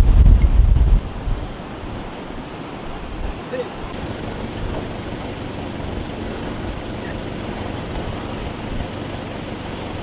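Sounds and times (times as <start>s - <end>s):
motor running steadily: 3.9s - 10.0s.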